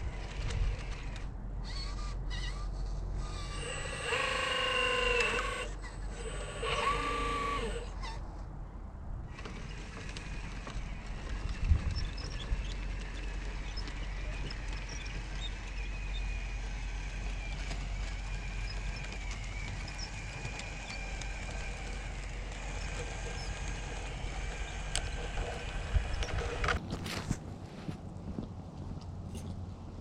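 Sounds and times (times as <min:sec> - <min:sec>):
toy truck clicking over rock: 0:00.0 - 0:08.1, 0:09.3 - 0:27.4
electric motor and gears whining: 0:00.0 - 0:08.2, 0:09.3 - 0:27.4
wind on microphone: 0:11.0 - 0:13.0, 0:24.4 - 0:28.6.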